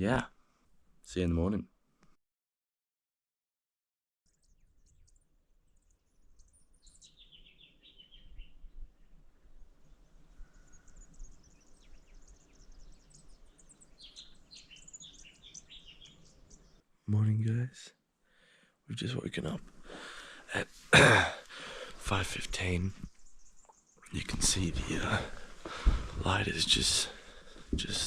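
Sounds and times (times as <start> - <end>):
birds chirping and trilling: 4.3 - 16.8, 19.1 - 28.0.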